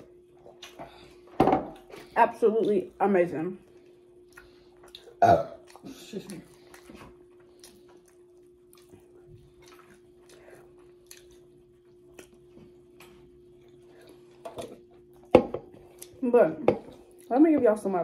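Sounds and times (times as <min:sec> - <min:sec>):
faint hum: 0:00.0 - 0:18.0
chewing clicks and smacks: 0:04.2 - 0:13.2.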